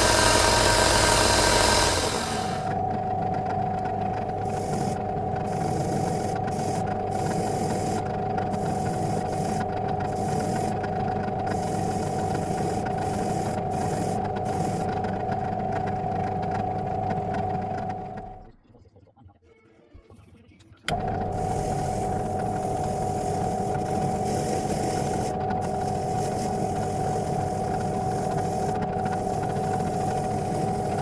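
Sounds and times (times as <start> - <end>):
power tool motor whining: 0.0 - 2.8, 4.4 - 14.9, 20.9 - 31.0.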